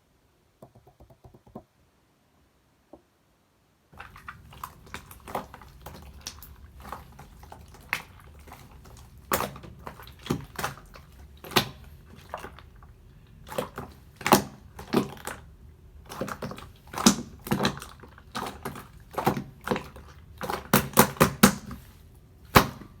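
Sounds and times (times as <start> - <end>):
slime squishing and popping: 13.4 - 21.8, 22.5 - 23.0.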